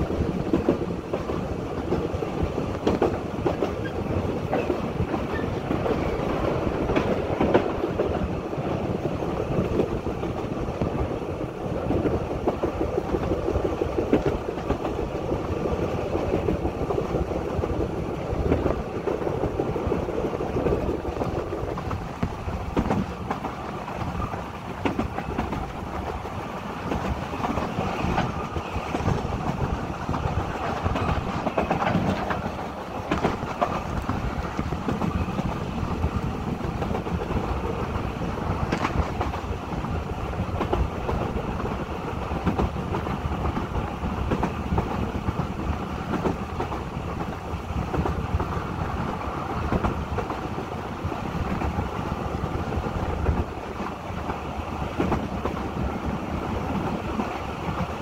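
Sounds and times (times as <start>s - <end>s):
train carriages rumbling: 0.0s - 58.0s
wheels clicking over rail joints: 0.1s - 58.0s.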